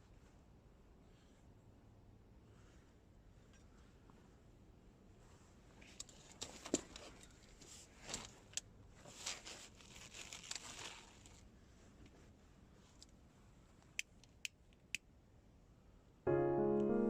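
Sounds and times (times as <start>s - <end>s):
faint rustling and crinkling: 0.0s - 1.8s, 2.4s - 14.0s.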